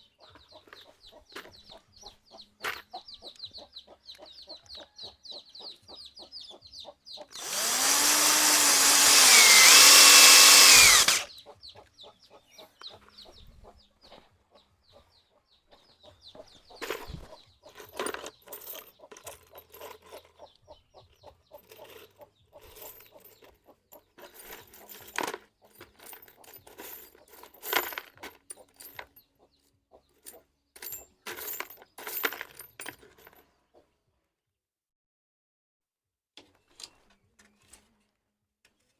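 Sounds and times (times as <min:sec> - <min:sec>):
handheld power tool motor: 0:07.3 - 0:11.3
tools and wood clicking: 0:07.3 - 0:11.3, 0:16.8 - 0:20.5, 0:36.4 - 0:38.0.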